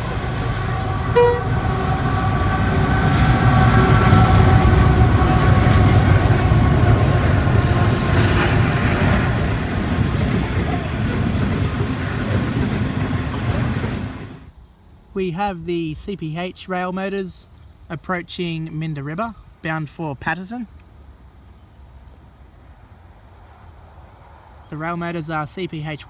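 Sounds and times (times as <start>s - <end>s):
locomotives passing: 0.0s - 14.5s
wagons rumbling and clattering: 5.0s - 14.4s.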